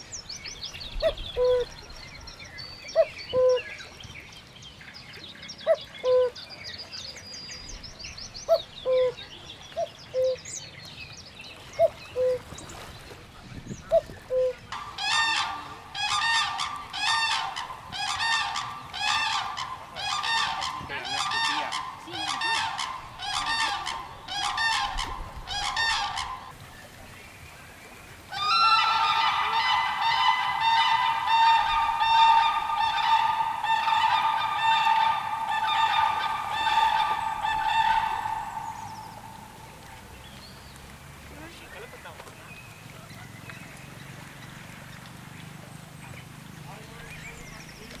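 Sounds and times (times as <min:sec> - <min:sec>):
chorus of bird calls: 0:00.0 - 0:27.0, 0:27.8 - 0:48.0
bird giving harsh calls: 0:14.3 - 0:26.5, 0:28.4 - 0:39.8.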